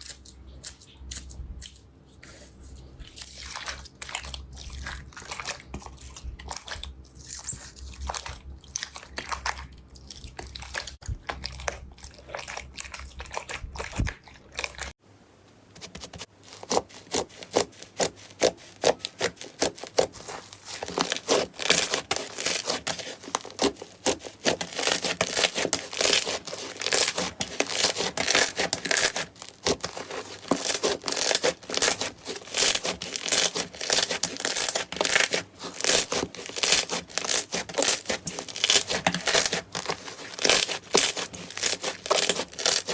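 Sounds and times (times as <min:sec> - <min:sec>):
slime crackling and rubbing: 0:15.8 - 0:42.9
crisp slime crackling and snapping: 0:18.4 - 0:42.9.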